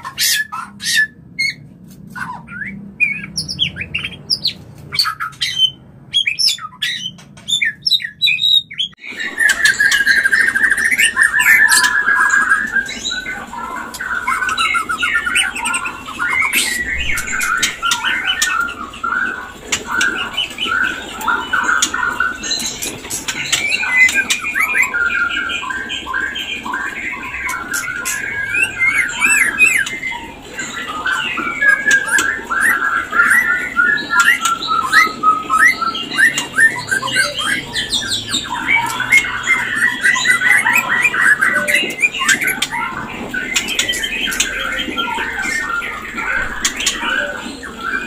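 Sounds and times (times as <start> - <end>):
bird harsh rattling churrs: 0.0 - 48.0
bird whistled notes: 2.2 - 22.7.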